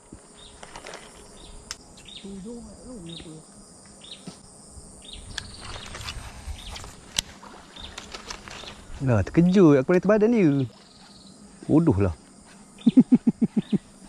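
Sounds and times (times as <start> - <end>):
faint insect noise: 0.0 - 14.0
bird chirping: 12.8 - 13.9.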